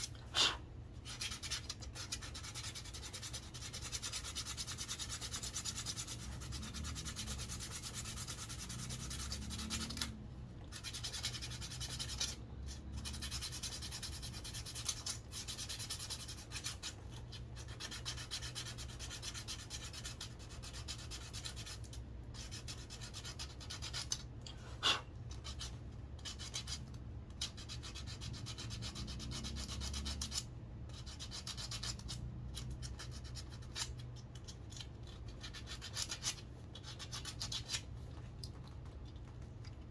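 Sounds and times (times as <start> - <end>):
sandpaper rasping on wood: 0.4 - 10.1, 10.7 - 16.9.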